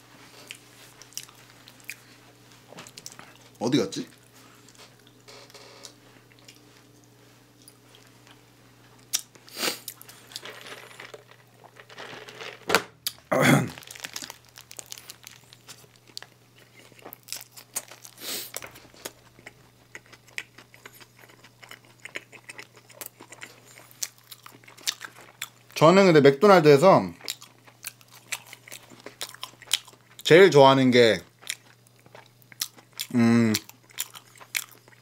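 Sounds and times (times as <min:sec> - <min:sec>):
crunchy bites: 0:13.0 - 0:25.6
paper wrapper crinkling: 0:13.2 - 0:19.2.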